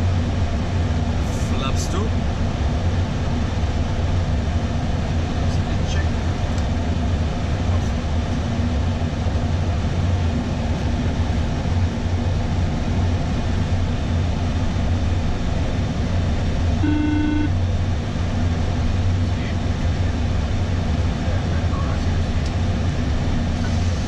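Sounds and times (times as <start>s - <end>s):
low engine hum: 0.0s - 24.0s
short electronic beep: 16.8s - 17.6s.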